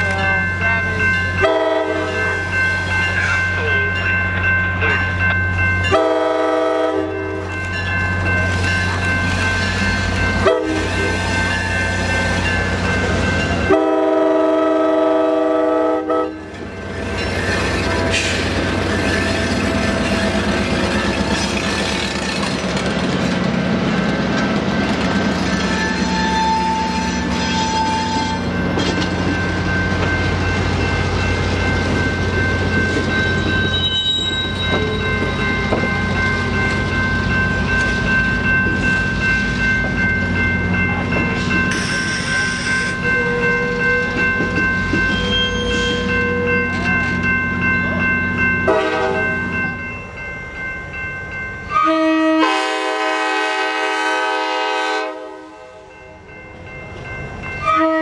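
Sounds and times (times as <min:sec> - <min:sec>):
locomotive air horn: 0:01.4 - 0:02.2, 0:05.9 - 0:07.2, 0:10.4 - 0:10.9, 0:13.7 - 0:16.4, 0:48.7 - 0:49.2, 0:51.7 - 0:55.8, 0:57.6 - 0:58.0
train wheels clattering on rails: 0:16.4 - 0:49.8.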